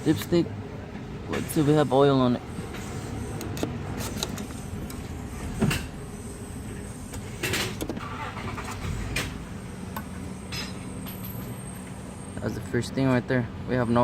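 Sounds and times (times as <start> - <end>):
dipstick clicks and scrape: 2.8 - 5.0.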